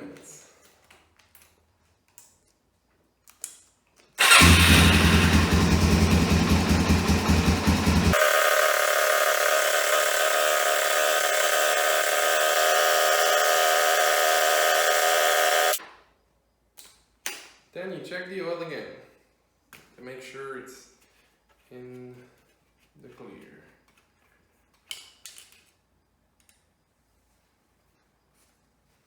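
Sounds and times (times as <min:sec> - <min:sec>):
motorcycle engine starting and idling: 0:04.2 - 0:15.8.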